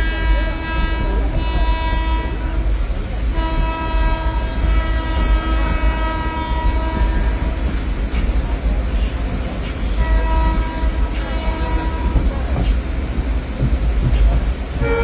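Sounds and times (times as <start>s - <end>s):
train horn blasts: 0.0s - 7.8s, 9.8s - 12.3s, 14.8s - 15.0s
low rumble of train: 0.0s - 15.0s.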